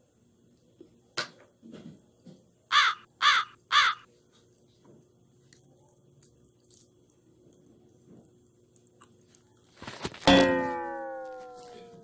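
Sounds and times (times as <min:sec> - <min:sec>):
bird calling: 0:02.7 - 0:04.1.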